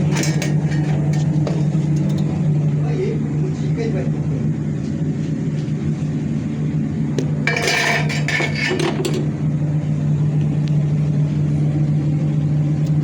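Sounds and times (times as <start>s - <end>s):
hard objects clattering: 0.0s - 2.3s, 7.2s - 9.3s
steady low hum: 0.0s - 13.0s.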